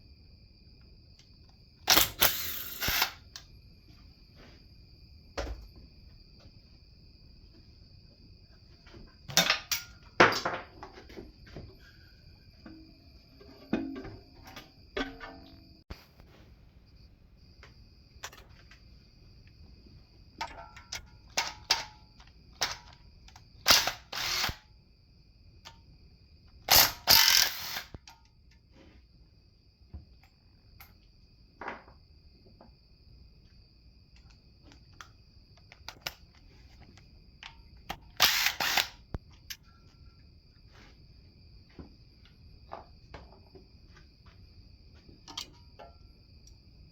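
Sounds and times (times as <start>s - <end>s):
metal clicks and clanks: 20.4s - 24.0s
loud rasping tool bursts: 23.7s - 24.6s, 26.7s - 27.9s, 38.2s - 39.0s.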